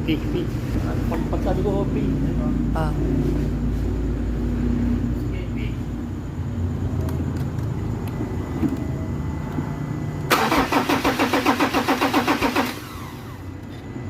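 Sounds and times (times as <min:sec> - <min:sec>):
diesel engine cranking on starter: 0:10.3 - 0:13.7.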